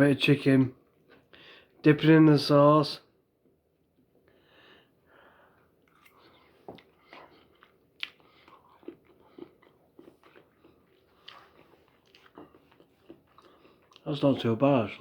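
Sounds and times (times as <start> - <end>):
close-up chewing: 5.6 - 14.6
wet mouth clicks and smacks: 5.8 - 14.1.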